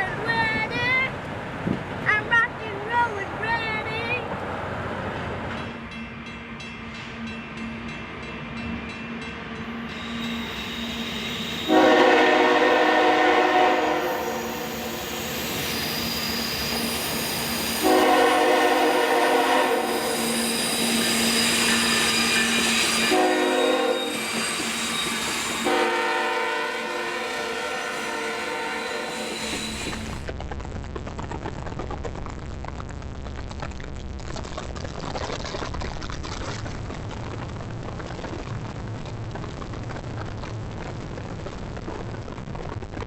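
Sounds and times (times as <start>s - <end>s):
train rumbling: 0.0s - 43.0s
locomotive horn blasts: 11.6s - 15.0s, 17.8s - 21.2s, 22.2s - 30.0s.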